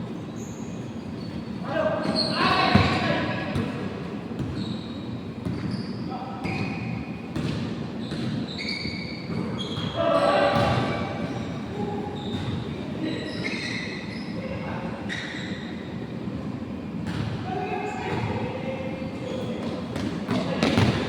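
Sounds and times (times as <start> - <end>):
sneakers squeaking: 0.1 - 21.0
basketball bouncing on court: 5.4 - 5.8, 7.3 - 8.4, 10.5 - 11.0, 19.6 - 21.0
players talking and shouting: 9.6 - 15.8.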